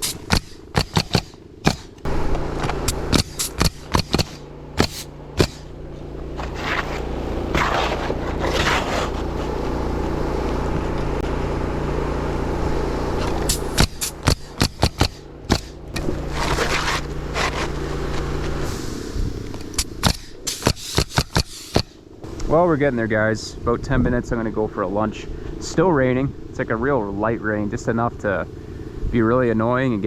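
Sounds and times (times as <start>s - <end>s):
nail gun shots: 0.0s - 2.1s, 2.8s - 5.7s, 13.2s - 16.1s, 19.6s - 22.0s
low machine hum: 0.0s - 29.0s
brief scraping: 6.4s - 9.7s, 15.1s - 19.0s.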